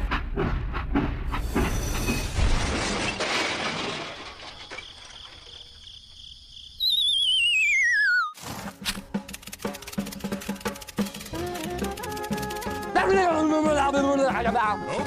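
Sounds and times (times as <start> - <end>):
rough clattering noise: 1.0 - 5.7, 8.4 - 13.0
whistle sliding down in pitch: 6.8 - 8.4.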